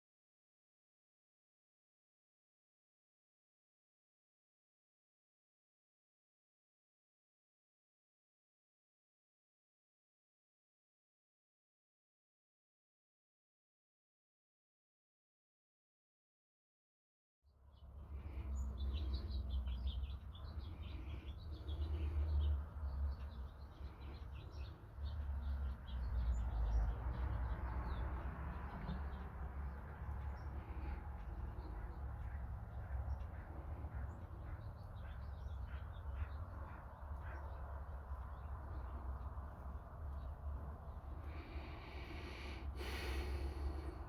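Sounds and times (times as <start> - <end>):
small birds chirping: 17.6 - 44.0.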